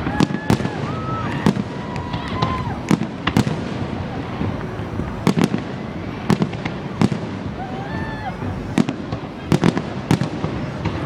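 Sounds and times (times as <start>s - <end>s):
fireworks bangs: 0.0s - 11.0s
fireworks rumble and crackle: 0.0s - 11.0s.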